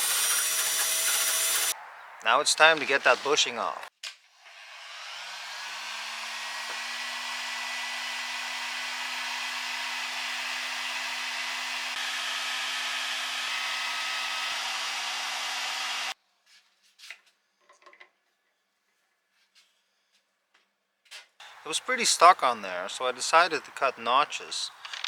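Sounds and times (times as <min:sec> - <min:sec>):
power tool cutting metal: 0:00.0 - 0:01.8, 0:04.5 - 0:16.2.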